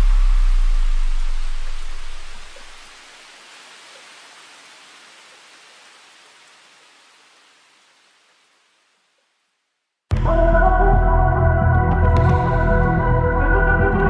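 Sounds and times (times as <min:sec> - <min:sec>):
steady rushing hiss: 0:00.0 - 0:10.1.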